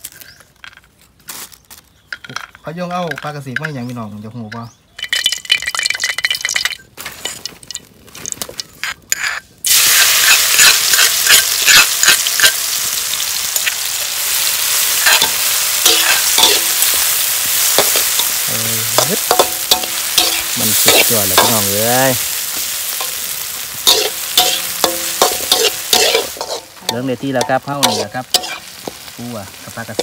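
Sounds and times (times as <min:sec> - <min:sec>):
fish sizzling in a pan: 0:09.6 - 0:30.0.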